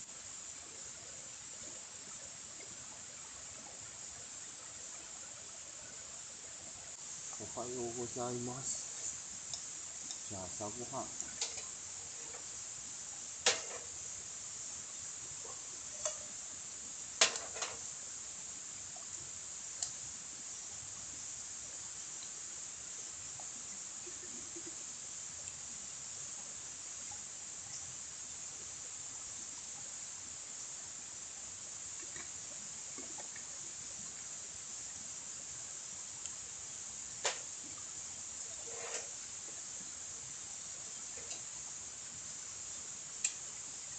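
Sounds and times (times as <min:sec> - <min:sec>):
insects hissing: 0:00.0 - 0:43.9
crickets chirping: 0:03.2 - 0:43.9
camp cookware clicks and knocks: 0:11.3 - 0:11.7, 0:13.4 - 0:13.9, 0:17.2 - 0:17.8.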